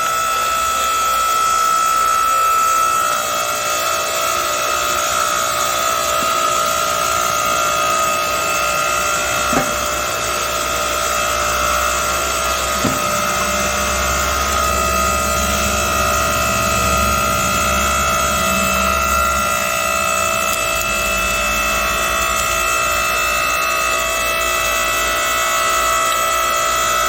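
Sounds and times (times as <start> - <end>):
log splitter motor whine: 0.0 - 27.0
deeper hum: 5.0 - 23.2
knock: 9.5 - 9.8, 12.8 - 13.2.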